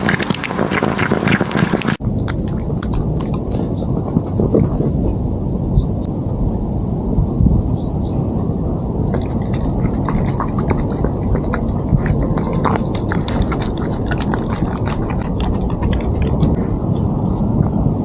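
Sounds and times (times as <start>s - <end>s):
cat chewing crunchy food: 0.0s - 4.9s, 9.2s - 16.6s
low rumble: 2.0s - 18.0s.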